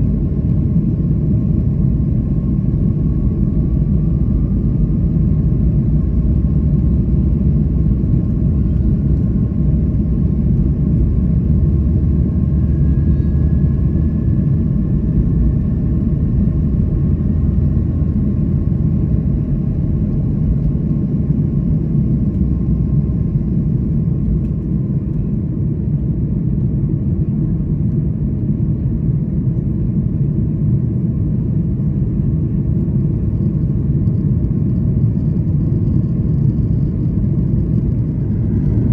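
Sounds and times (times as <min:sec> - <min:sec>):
airliner cabin rumble: 0:00.0 - 0:38.9
faint high hum: 0:01.8 - 0:17.5.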